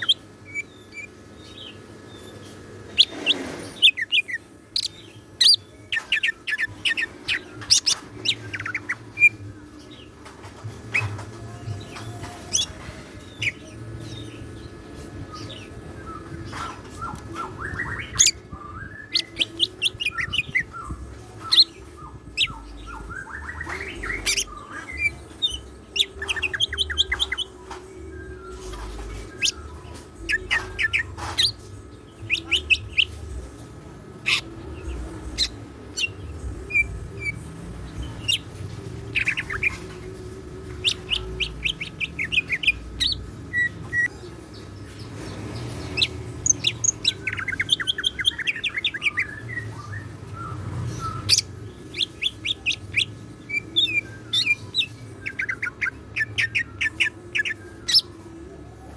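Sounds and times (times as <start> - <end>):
bird singing chirps and rising notes: 3.8 - 9.7, 10.9 - 33.3, 45.0 - 58.9.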